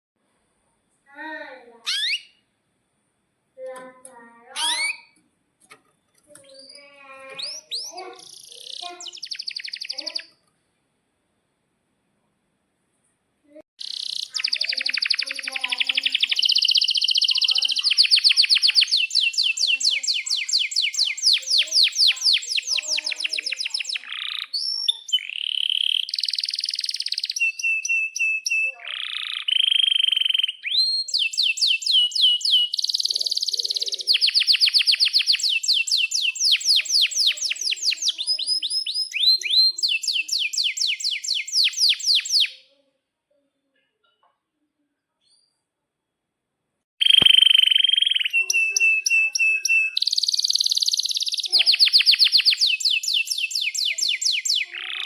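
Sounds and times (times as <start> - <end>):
canary singing trills: 1.2 - 2.4, 4.4 - 5.2, 6.3 - 10.4, 13.8 - 42.8, 47.0 - 55.0.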